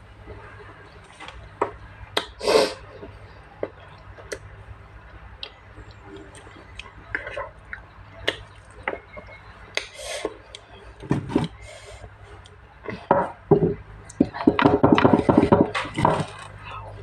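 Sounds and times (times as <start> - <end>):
wet mouth clicks and smacks: 5.4 - 8.8.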